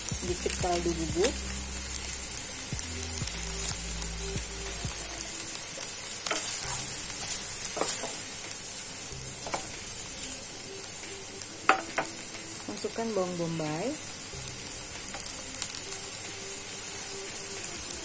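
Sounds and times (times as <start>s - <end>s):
squid sizzling in a hot pan: 0.0s - 18.0s
wooden spatula scraping and tapping: 6.3s - 8.2s, 9.4s - 9.7s.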